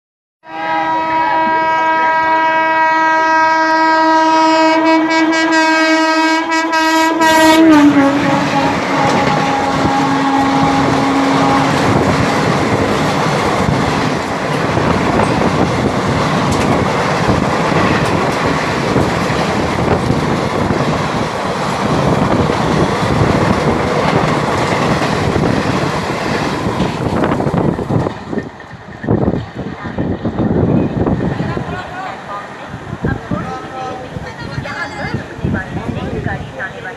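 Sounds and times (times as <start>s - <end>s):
train horn blast: 0.4s - 12.6s
train coaches rushing past: 3.9s - 36.9s.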